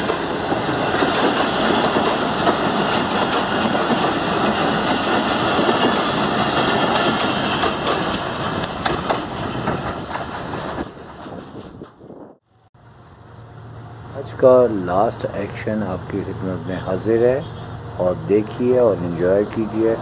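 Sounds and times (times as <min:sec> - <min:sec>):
train wheels clattering over rail joints: 0:00.0 - 0:12.0.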